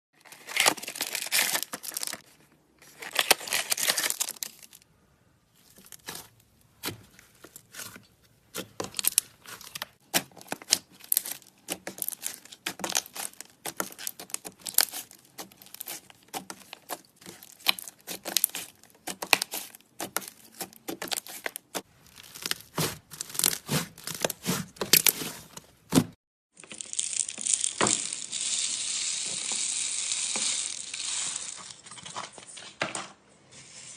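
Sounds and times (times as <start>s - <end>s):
slime crackling and popping: 8.9s - 24.5s.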